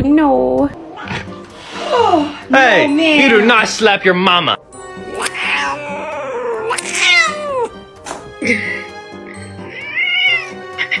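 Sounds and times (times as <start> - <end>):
background music: 0.0 - 11.0
cat meowing: 5.2 - 7.8, 9.6 - 11.0.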